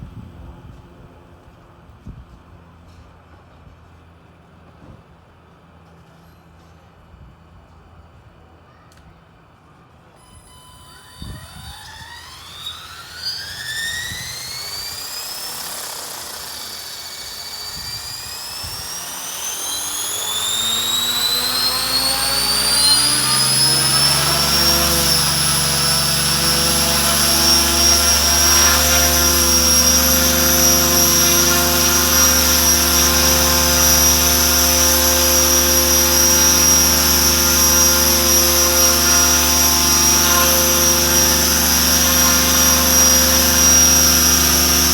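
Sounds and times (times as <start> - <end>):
electric motor and gear whine: 10.2 - 44.9
rotor hum: 10.2 - 44.9.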